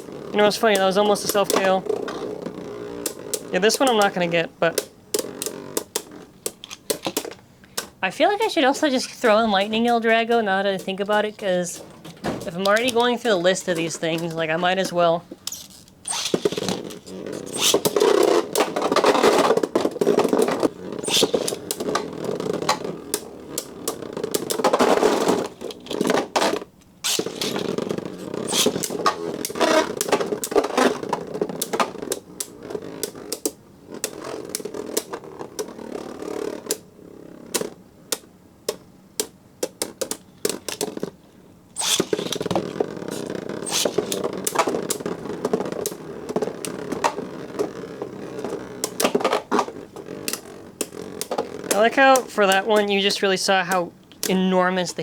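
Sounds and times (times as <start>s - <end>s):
spinning tops clacking: 0.0s - 1.8s, 2.9s - 22.1s, 28.4s - 31.0s, 41.7s - 42.6s
spinning tops whirring: 0.0s - 41.1s, 41.7s - 55.0s.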